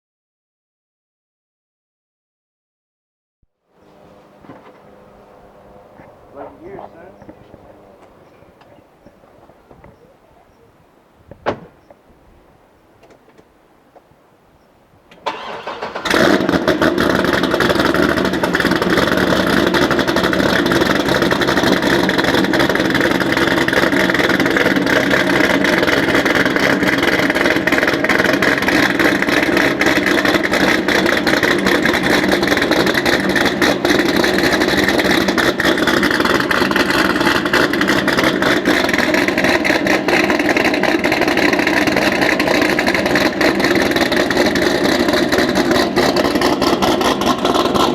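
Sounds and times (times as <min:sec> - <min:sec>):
car engine starting: 0:03.7 - 0:13.6, 0:15.0 - 0:47.9
loud cold idle of car engine: 0:15.2 - 0:47.9.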